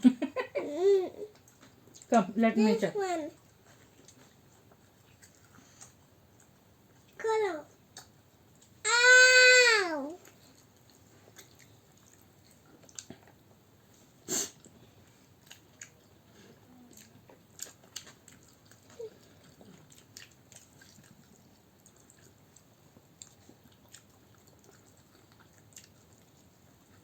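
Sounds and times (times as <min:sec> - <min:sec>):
food being chewed: 0:01.3 - 0:02.1, 0:03.4 - 0:07.2, 0:10.2 - 0:27.0
small clicks and smacks: 0:07.8 - 0:08.8.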